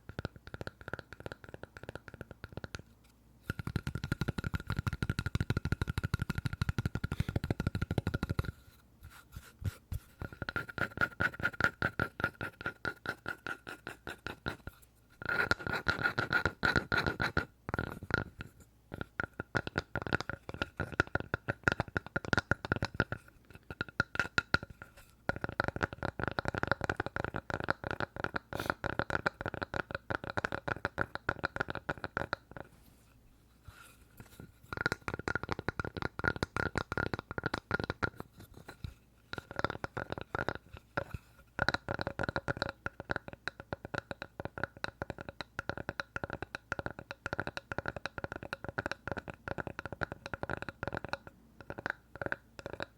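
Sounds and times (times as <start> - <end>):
rapid tapping on wood: 3.4 - 8.7, 34.2 - 52.9.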